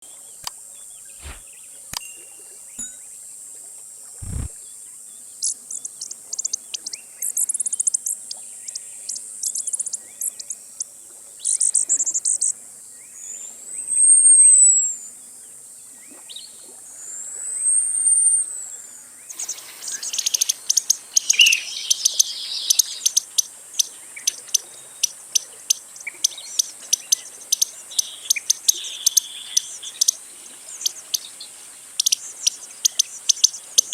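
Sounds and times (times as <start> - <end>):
thin high whistles: 1.2 - 1.4
high chirps: 2.0 - 3.1.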